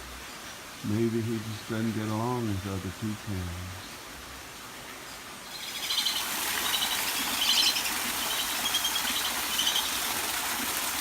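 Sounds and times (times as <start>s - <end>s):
running water: 5.2s - 11.0s
duck chattering calls: 5.5s - 10.3s.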